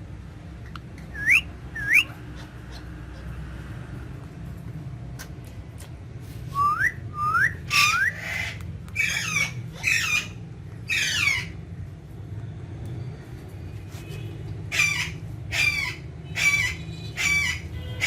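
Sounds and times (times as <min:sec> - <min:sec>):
parakeet whistles: 0:01.1 - 0:02.8, 0:06.6 - 0:10.3
parakeet screeching calls: 0:01.1 - 0:03.4, 0:07.2 - 0:11.6, 0:14.7 - 0:17.8.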